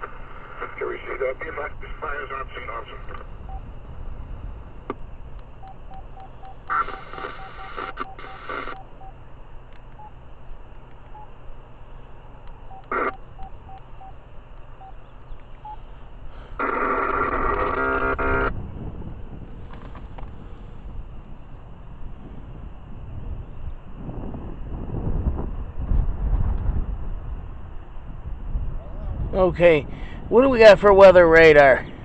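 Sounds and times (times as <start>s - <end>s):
faint regular beeps: 0.4s - 3.7s, 4.9s - 16.0s
electronic signalling tones: 5.5s - 9.3s, 9.9s - 10.2s, 11.1s - 11.4s, 12.6s - 14.2s, 14.8s - 15.9s, 16.6s - 18.6s.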